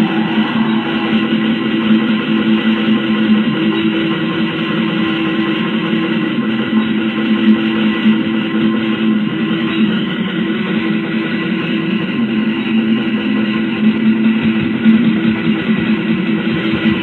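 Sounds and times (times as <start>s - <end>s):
distorted electric guitars: 0.0s - 3.8s
bass: 0.0s - 17.0s.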